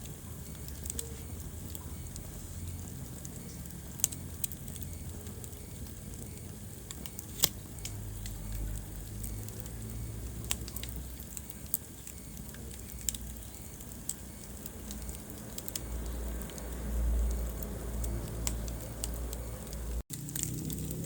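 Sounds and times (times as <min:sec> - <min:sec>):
fire crackles and pops: 0:00.0 - 0:21.0
fire flames rumbling: 0:00.0 - 0:21.0.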